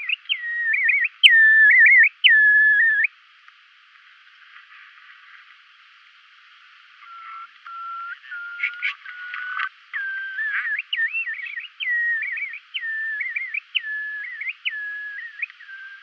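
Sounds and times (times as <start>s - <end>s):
curlew whistled calls: 0.0s - 3.1s, 7.0s - 16.0s
low steady whistles: 0.0s - 3.1s, 7.0s - 16.0s.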